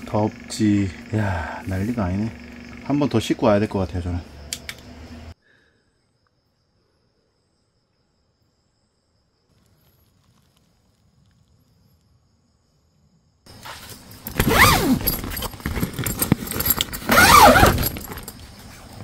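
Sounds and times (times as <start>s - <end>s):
tent fabric rustling: 13.5s - 19.0s.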